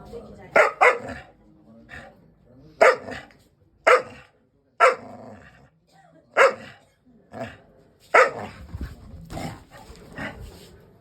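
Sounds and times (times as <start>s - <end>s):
dog barking: 0.5s - 1.3s, 2.8s - 5.1s, 6.4s - 6.8s, 8.1s - 8.6s.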